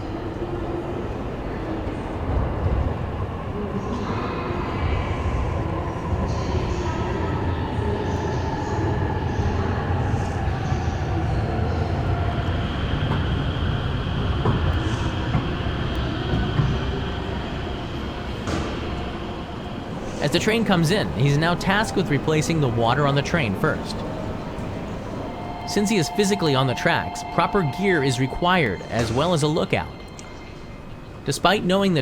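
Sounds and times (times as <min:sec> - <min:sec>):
train rumbling with falling whine: 0:03.6 - 0:31.4
steady high-pitched tone: 0:19.9 - 0:31.5.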